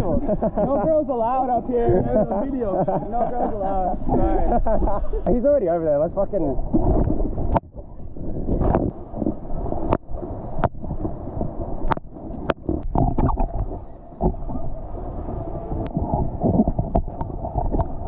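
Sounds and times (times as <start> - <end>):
water sloshing and gurgling: 6.0 - 18.0
water splashes: 6.2 - 18.0.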